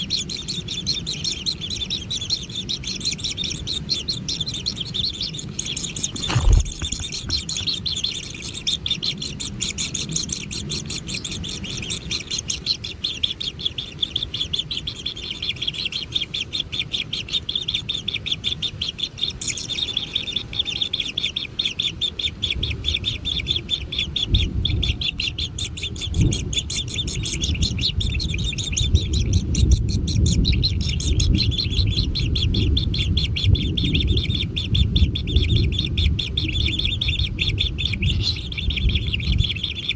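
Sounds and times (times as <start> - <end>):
low rumbling noise: 0.0 - 39.9
nestlings chirping: 0.0 - 39.9
sharp thump: 6.2 - 7.4.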